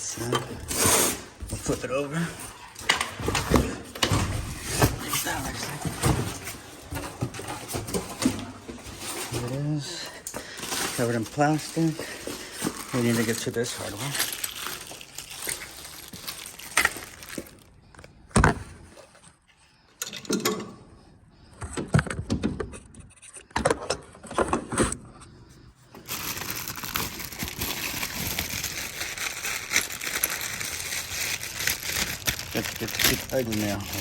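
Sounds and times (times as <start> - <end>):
plastic packaging rustling: 2.7 - 17.8, 26.0 - 34.0.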